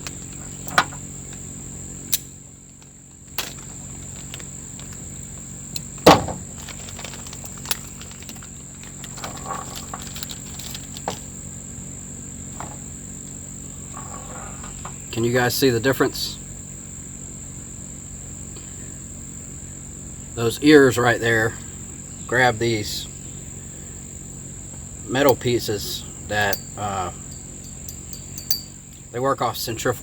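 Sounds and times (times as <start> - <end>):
crickets chirring: 0.0 - 30.0
clicks and knocks of handled parts: 26.4 - 28.8.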